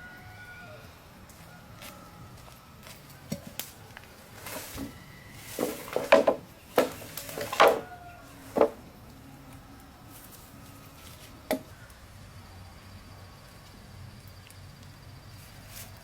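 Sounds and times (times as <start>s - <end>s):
chopping wood: 5.6s - 7.9s.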